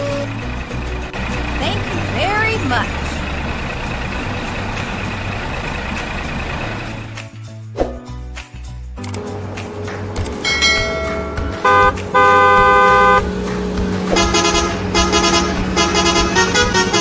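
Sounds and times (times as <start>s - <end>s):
truck horn honking: 0.0s - 7.0s, 11.5s - 13.4s, 14.1s - 17.0s
truck engine running: 0.0s - 7.3s, 10.2s - 17.0s.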